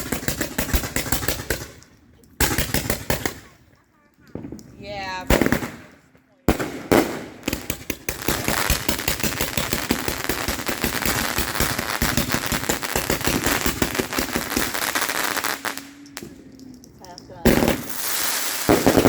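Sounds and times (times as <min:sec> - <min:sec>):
fireworks crackling pops: 0:00.0 - 0:19.0
firework bang: 0:05.3 - 0:16.4, 0:17.4 - 0:19.0.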